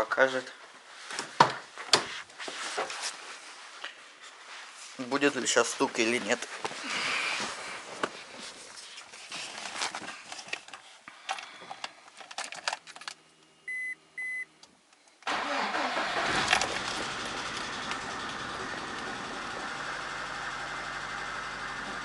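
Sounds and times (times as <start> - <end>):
small clicks and rattles: 10.3 - 13.2
short beeps: 13.7 - 14.5
car engine cranking and starting: 15.2 - 22.0.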